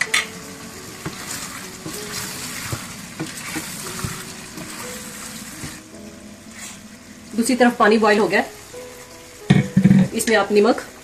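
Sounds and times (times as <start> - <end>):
food sizzling in a steel pot: 0.0 - 11.0
pot being stirred knocks: 9.4 - 10.2.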